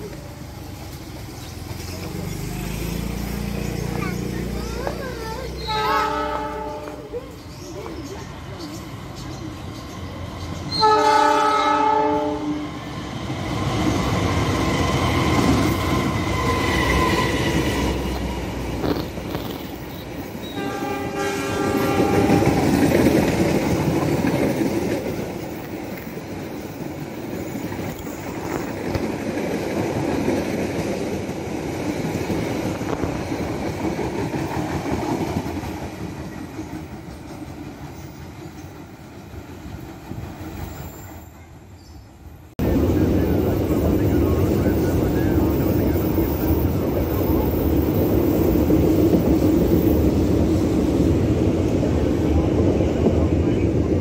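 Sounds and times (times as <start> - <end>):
train coaches rumbling: 0.0 - 54.0
locomotive horn blasts: 5.7 - 7.0, 10.8 - 12.6, 20.5 - 22.8.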